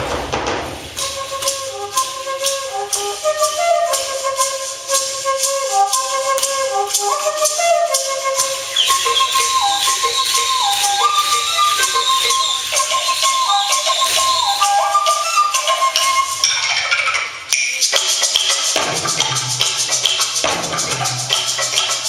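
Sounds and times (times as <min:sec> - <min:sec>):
rattle shaking steady beat: 0:00.0 - 0:22.0
flute playing slow melody: 0:01.0 - 0:16.5.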